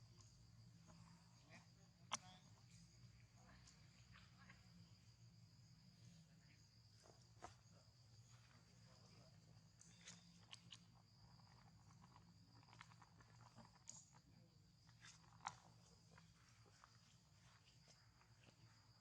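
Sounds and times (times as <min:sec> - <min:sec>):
faint clicks and rustles: 0:06.4 - 0:19.0.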